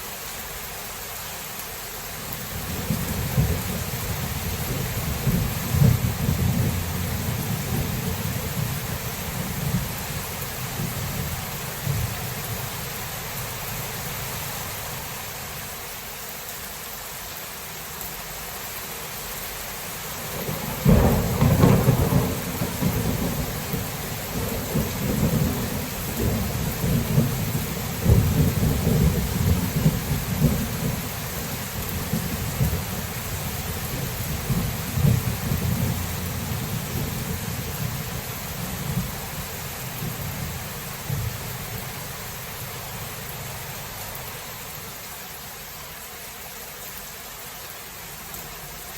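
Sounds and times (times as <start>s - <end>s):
rain hissing: 0.0s - 48.9s
low thunder rumbling: 2.5s - 12.8s, 20.3s - 44.0s
loud thunderclap: 20.4s - 31.1s, 33.9s - 38.0s.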